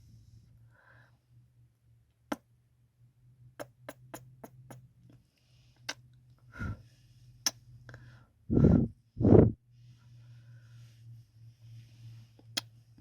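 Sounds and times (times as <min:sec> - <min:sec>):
soft breath: 0:00.0 - 0:01.4, 0:05.2 - 0:13.0
low steady hum: 0:00.0 - 0:13.0.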